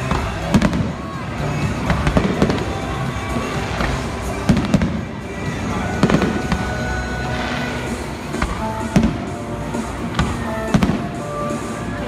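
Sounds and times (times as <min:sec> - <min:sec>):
fireworks bursting: 0:00.0 - 0:11.9
music playing: 0:00.0 - 0:12.0.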